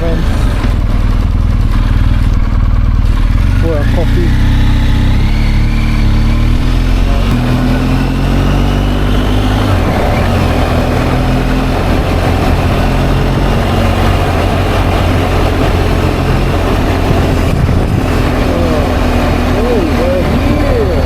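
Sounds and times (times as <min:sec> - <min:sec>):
motorcycle engine running: 0:00.0 - 0:21.0
wind rush over microphone: 0:08.8 - 0:21.0.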